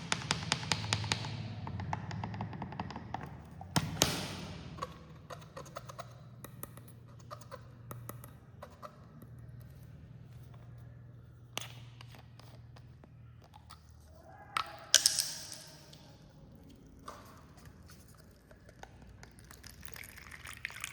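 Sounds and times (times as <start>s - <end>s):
cola fizzing: 19.2s - 20.9s.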